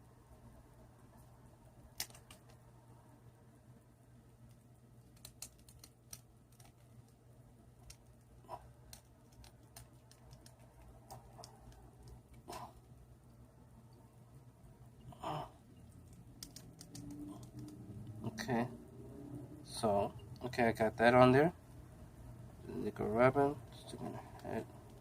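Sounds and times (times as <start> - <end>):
low steady hum: 0.0 - 25.0
plastic parts clicking: 4.5 - 7.2, 16.0 - 17.8.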